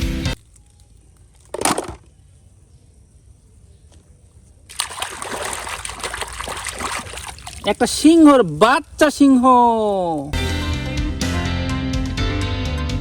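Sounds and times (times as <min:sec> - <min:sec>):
water splashing: 0:04.6 - 0:10.3
water running: 0:04.7 - 0:10.4.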